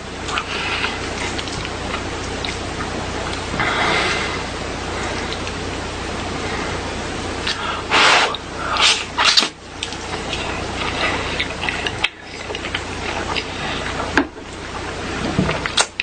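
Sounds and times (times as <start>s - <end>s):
chewing and biting: 0.2s - 4.4s, 5.0s - 5.6s, 8.3s - 16.0s.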